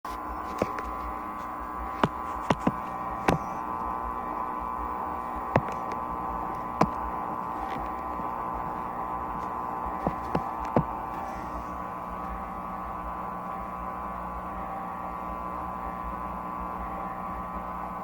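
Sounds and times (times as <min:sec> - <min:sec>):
washing machine motor hum: 0:00.0 - 0:18.0
unbalanced load knocking: 0:00.5 - 0:03.7, 0:05.2 - 0:11.2.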